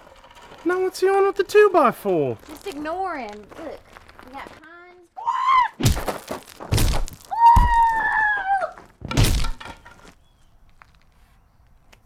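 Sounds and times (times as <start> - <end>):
long high scream: 5.2 - 5.8, 7.3 - 8.7
wooden board striking blows: 9.0 - 10.1.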